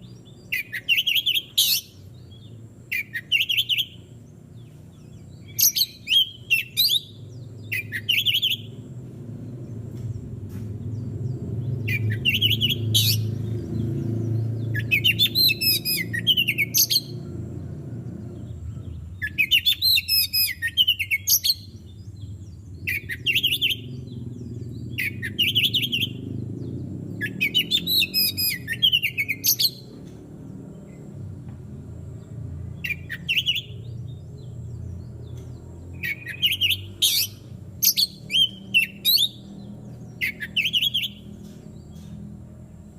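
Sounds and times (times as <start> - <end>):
bird singing whistled phrases: 0.4 - 4.1, 5.4 - 8.8, 11.9 - 13.3, 14.6 - 17.1, 19.2 - 21.7, 22.9 - 24.0, 25.0 - 26.3, 27.2 - 29.9, 32.8 - 33.9, 36.0 - 39.6, 40.2 - 41.3
steady low rumble: 8.6 - 19.6, 20.5 - 33.1.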